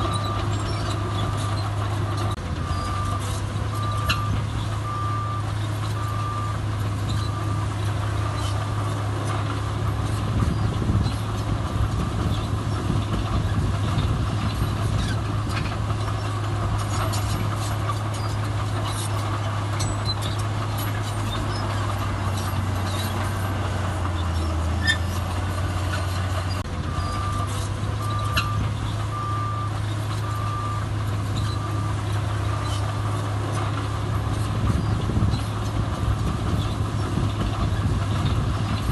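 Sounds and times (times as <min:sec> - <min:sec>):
heavy diesel machinery running: 0:00.0 - 0:38.9
reversing alarm beeping: 0:02.6 - 0:07.6, 0:26.9 - 0:32.0.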